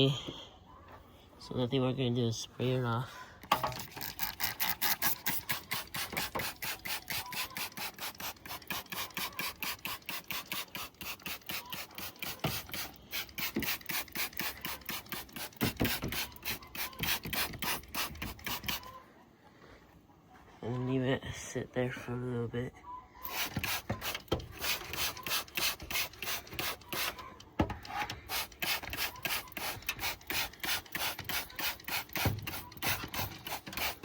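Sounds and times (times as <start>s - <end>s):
trigger spray bottle squirting: 3.5s - 18.9s, 23.2s - 34.0s.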